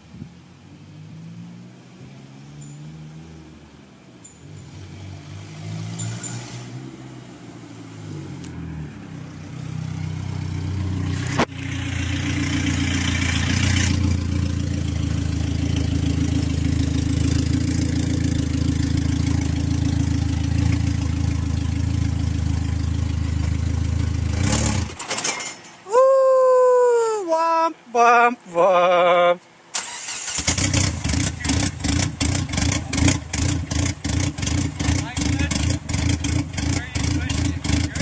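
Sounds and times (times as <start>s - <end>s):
car engine running: 9.4s - 24.9s, 30.5s - 38.0s.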